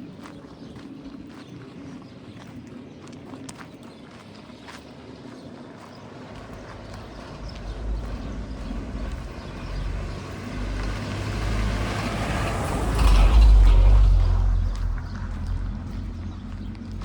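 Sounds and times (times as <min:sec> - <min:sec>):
vehicle passing by: 0:06.1 - 0:17.0.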